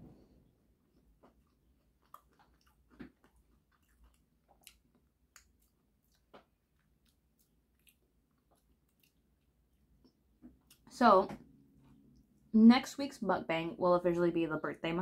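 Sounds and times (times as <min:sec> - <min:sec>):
faint chewing mouth clicks: 0:00.9 - 0:10.8.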